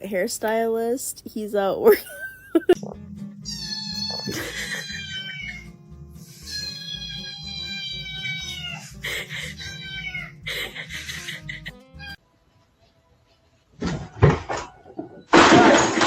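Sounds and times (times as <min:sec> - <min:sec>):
background music with steady beat: 0:02.7 - 0:13.8
cat meowing: 0:03.4 - 0:05.7, 0:06.4 - 0:10.4.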